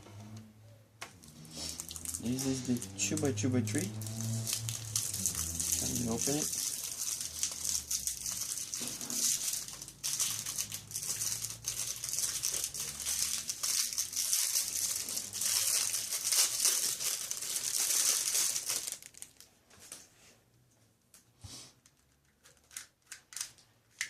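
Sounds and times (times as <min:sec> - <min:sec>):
packaging crinkling and rustling: 0:01.1 - 0:20.1.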